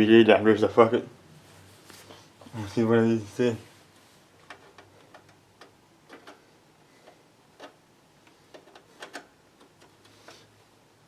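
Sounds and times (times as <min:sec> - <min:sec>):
small hard parts clicking: 0:04.4 - 0:10.5.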